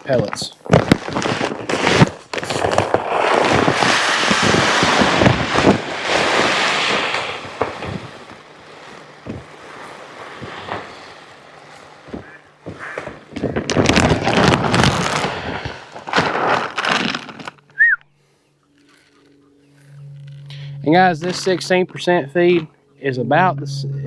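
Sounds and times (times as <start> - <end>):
feed pellets pouring into bucket: 1.7 - 11.8, 13.8 - 17.6.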